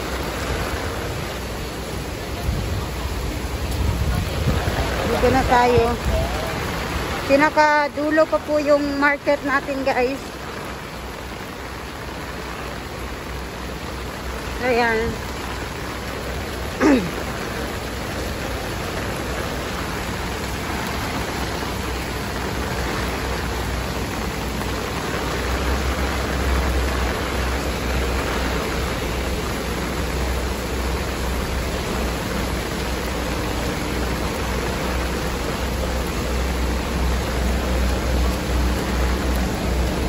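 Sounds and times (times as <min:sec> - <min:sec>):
wind rumble on microphone: 0:00.0 - 0:16.6
heavy rain hissing: 0:00.0 - 0:40.0.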